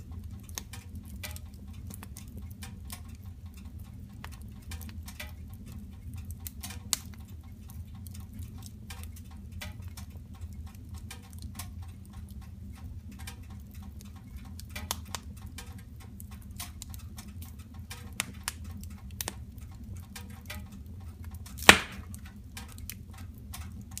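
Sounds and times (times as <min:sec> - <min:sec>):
wood fire crackling: 0:00.0 - 0:24.0
loud fire pop: 0:21.6 - 0:22.2.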